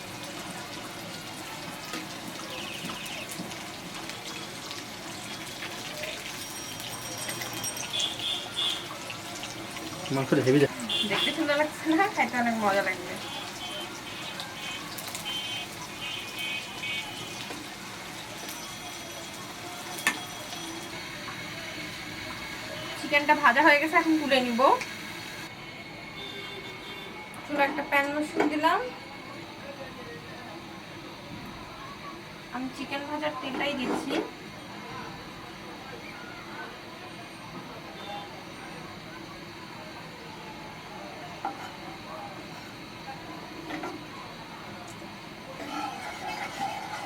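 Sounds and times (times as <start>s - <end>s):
chicken sizzling in hot oil: 0.0s - 25.5s, 37.9s - 47.0s.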